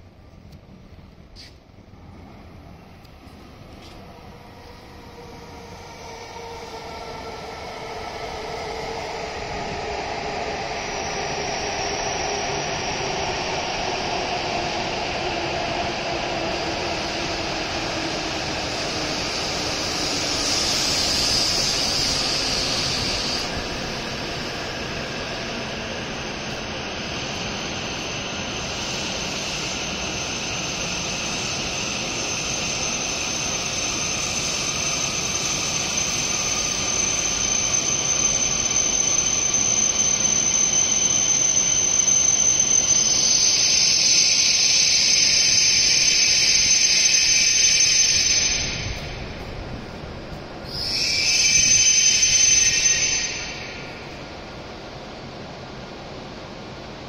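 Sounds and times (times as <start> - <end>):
high steady whine: 0.0 - 57.0
train wheels and air rushing: 0.0 - 57.0
hiss: 16.7 - 55.2.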